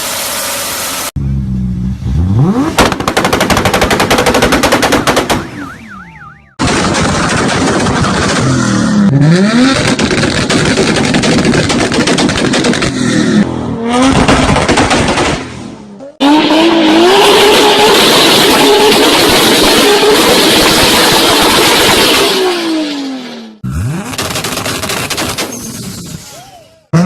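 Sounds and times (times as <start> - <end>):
car engine revving hard: 2.0 - 3.2, 7.6 - 11.9, 12.6 - 15.0, 16.2 - 25.2
exhaust backfire crackle: 2.4 - 5.4, 6.6 - 13.2.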